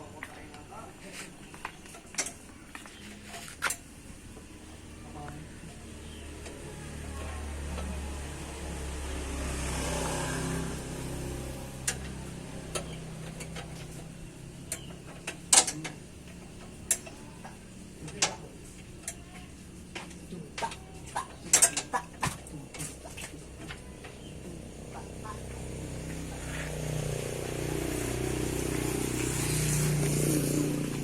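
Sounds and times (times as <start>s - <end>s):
metal clicks and knocks: 11.8s - 24.2s.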